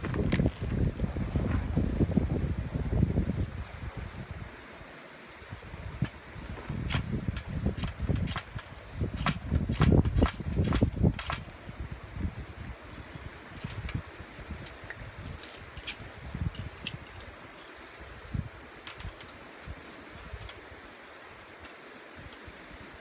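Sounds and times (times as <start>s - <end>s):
wind rumbling on microphone: 0.0s - 23.0s
sharp clicks and light knocks: 18.8s - 20.6s.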